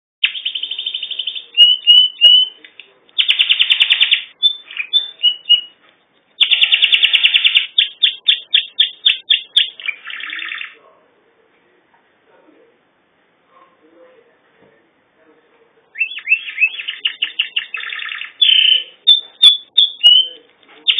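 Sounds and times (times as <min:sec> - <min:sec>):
canary singing trills: 0:00.2 - 0:02.6, 0:03.2 - 0:05.8, 0:06.4 - 0:10.8, 0:16.0 - 0:20.9.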